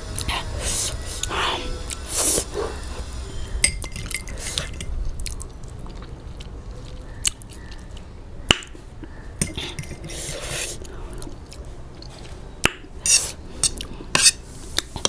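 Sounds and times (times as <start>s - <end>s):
chewing and biting food: 4.4s - 8.1s.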